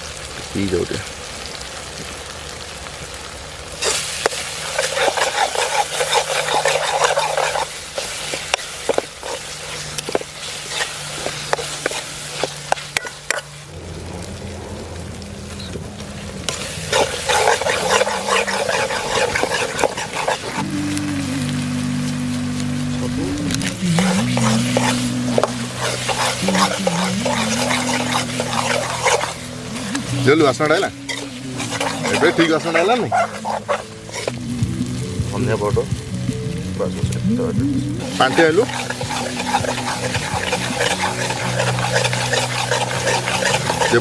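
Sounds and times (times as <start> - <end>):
food sizzling in a pan: 0.0 - 44.0
spatula scraping a pan: 3.8 - 13.6, 16.5 - 20.8, 23.6 - 34.4, 38.0 - 44.0.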